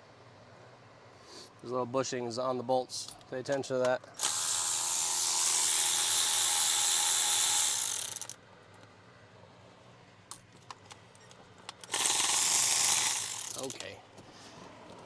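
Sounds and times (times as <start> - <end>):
metal parts clicking: 4.2 - 8.4, 11.2 - 14.0
power tool whirring: 4.2 - 8.4, 11.9 - 13.8.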